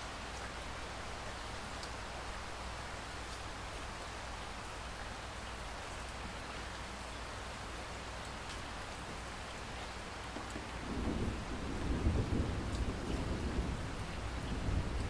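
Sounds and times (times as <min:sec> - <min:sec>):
steady rain falling: 0:00.0 - 0:15.0
thunder rumbling: 0:10.4 - 0:15.0.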